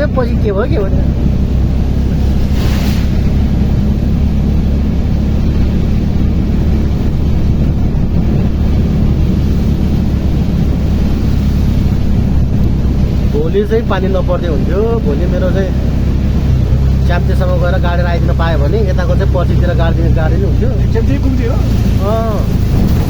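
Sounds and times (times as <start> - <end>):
auto-rickshaw engine running: 0.0 - 23.0
wind and road noise: 0.0 - 23.0
brief hiss: 2.5 - 3.2.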